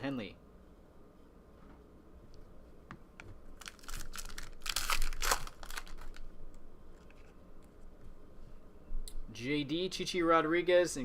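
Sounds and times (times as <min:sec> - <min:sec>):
cards rustling: 0:03.6 - 0:06.3
foil wrapper crinkling and tearing: 0:03.6 - 0:06.3.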